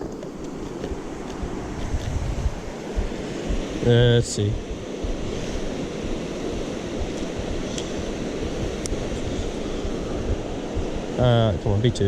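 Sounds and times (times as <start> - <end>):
faint clicks: 0.0 - 2.3
creek rapids rushing: 0.0 - 11.8.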